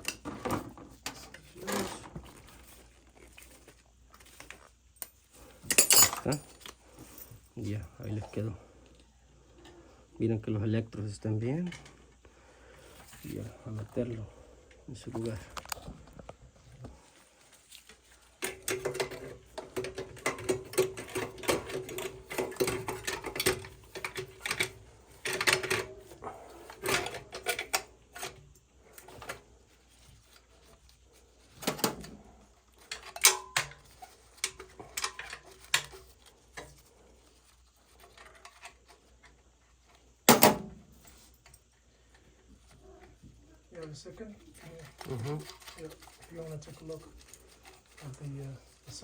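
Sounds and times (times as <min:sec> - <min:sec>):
metal parts clicking and scraping: 0:01.0 - 0:07.3, 0:17.7 - 0:30.4, 0:31.4 - 0:39.3.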